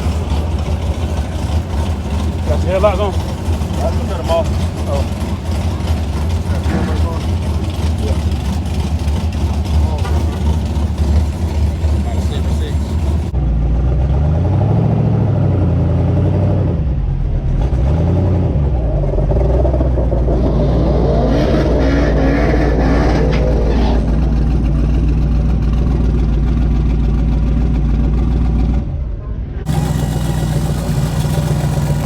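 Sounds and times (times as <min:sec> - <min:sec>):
car engine idling: 0:00.0 - 0:13.8, 0:21.8 - 0:32.0
second engine revving: 0:00.0 - 0:32.0.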